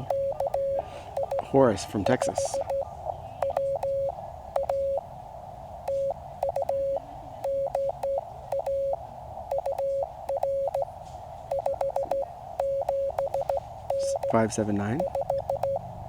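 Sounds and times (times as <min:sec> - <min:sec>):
radio hiss: 0:00.0 - 0:04.1
morse code tone: 0:00.0 - 0:05.1, 0:05.9 - 0:10.9, 0:11.5 - 0:15.8.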